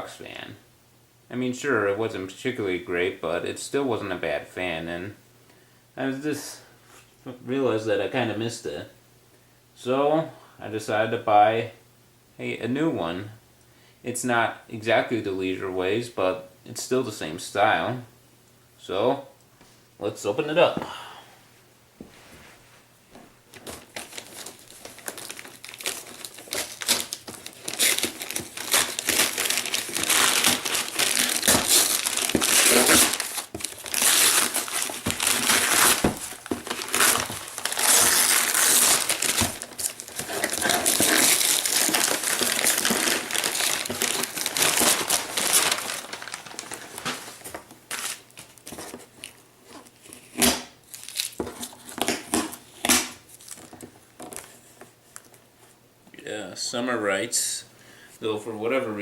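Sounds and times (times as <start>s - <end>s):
packaging crinkling and rustling: 23.5s - 55.5s.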